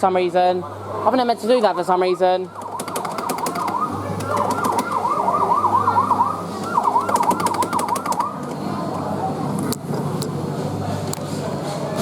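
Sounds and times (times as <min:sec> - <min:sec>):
electronic siren yelp: 0:01.6 - 0:08.4.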